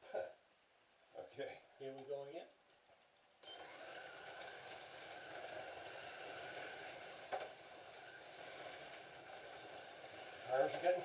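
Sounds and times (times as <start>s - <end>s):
slot cars whirring on track: 3.4s - 11.0s.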